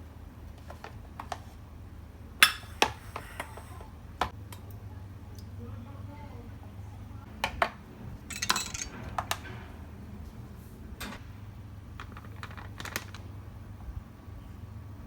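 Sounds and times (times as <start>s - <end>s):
small hard objects clinking: 8.3s - 9.4s, 12.0s - 13.3s.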